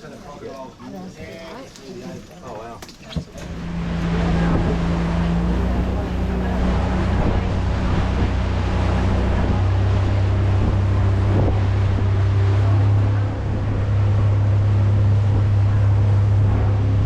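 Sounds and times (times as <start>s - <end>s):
engine droning: 3.3s - 17.0s
rushing noise: 3.4s - 17.0s.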